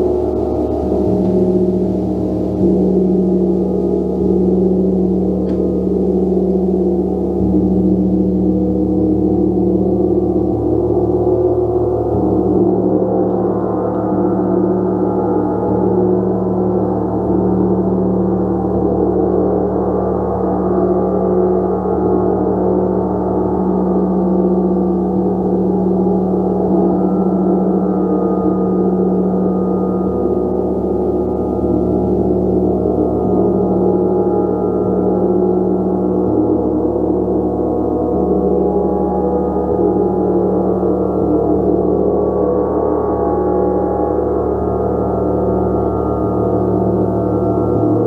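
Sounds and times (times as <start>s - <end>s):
low hum: 0.0s - 20.6s.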